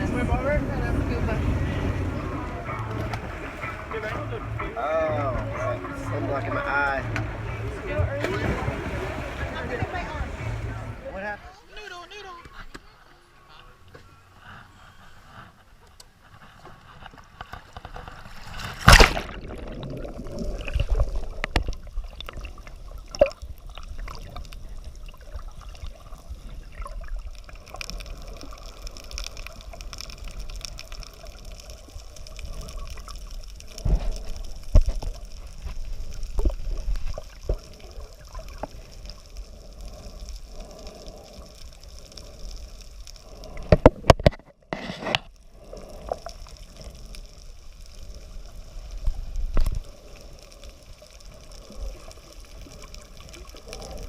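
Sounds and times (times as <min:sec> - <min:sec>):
low rumble: 0:00.0 - 0:11.4
water sloshing and splashing: 0:00.0 - 0:11.8, 0:15.2 - 0:54.0.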